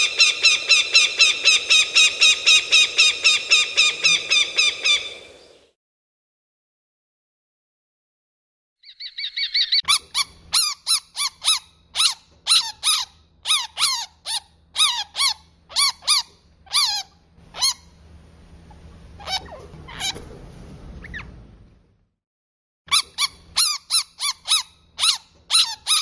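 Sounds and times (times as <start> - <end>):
bird squawking: 0.0 - 5.6.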